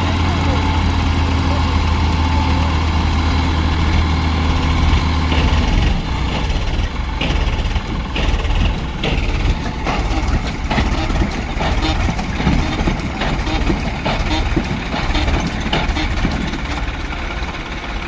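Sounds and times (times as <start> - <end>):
tractor diesel engine idling: 0.0 - 18.0
knocks or clanks: 3.7 - 17.5.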